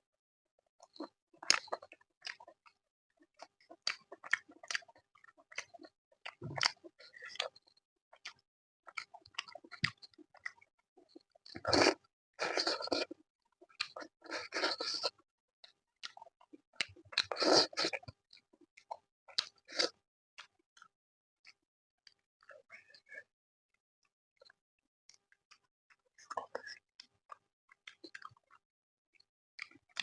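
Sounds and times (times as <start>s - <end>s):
person chewing with wet mouth sounds: 0.8s - 23.3s, 24.4s - 30.0s.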